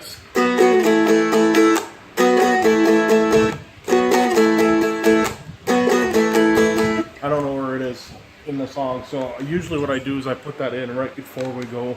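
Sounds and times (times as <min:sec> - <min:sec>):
picked string instrument phrase: 0:00.0 - 0:07.1.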